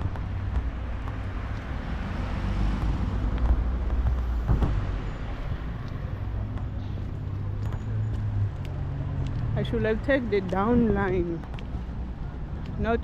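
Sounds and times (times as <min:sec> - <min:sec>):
cars passing: 0:00.0 - 0:13.0
steady low traffic rumble: 0:00.0 - 0:13.0.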